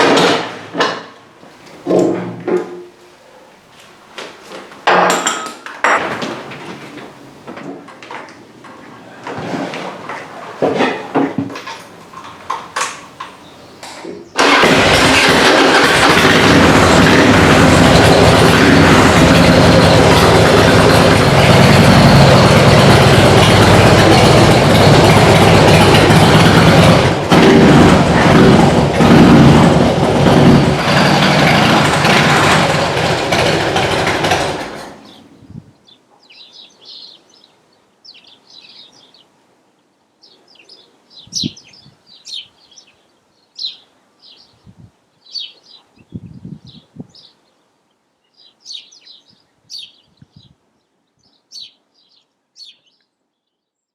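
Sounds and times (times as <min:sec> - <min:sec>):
motorcycle engine running loudly: 0:14.4 - 0:35.1.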